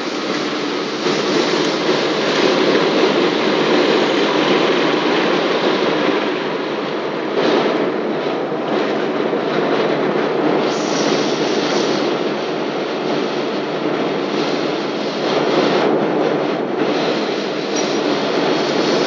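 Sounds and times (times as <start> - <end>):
airplane cabin engine noise: 0.0 - 19.0
rushing air: 0.0 - 19.0.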